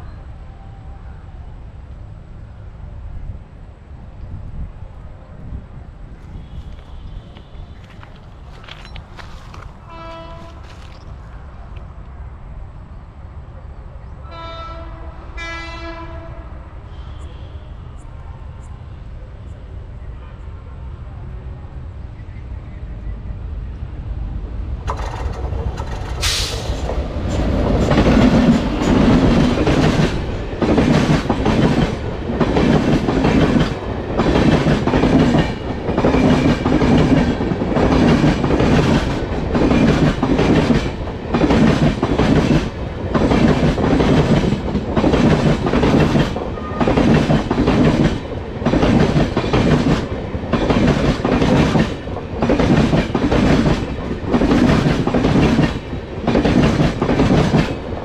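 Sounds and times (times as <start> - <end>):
train wheels clattering over rail joints: 6.7 - 11.1, 24.8 - 57.9.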